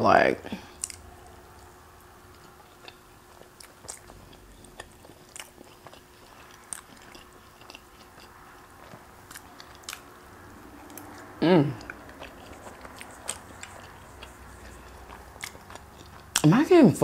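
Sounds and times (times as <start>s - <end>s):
chewing pancakes: 0.5s - 16.5s
mouth clicks and smacks: 0.8s - 1.0s, 11.8s - 16.5s.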